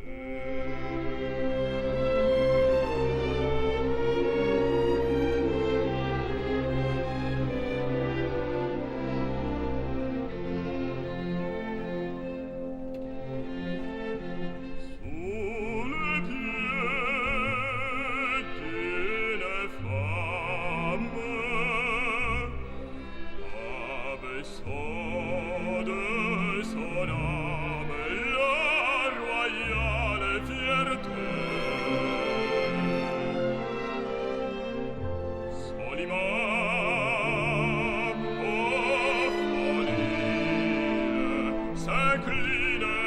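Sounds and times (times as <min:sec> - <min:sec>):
operatic singing: 0:00.0 - 0:43.0
orchestral accompaniment: 0:00.0 - 0:43.0.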